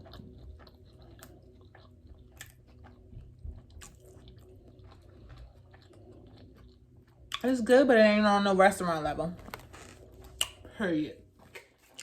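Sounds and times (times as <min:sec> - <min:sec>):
close chewing with wet mouth smacks: 0:00.0 - 0:07.5.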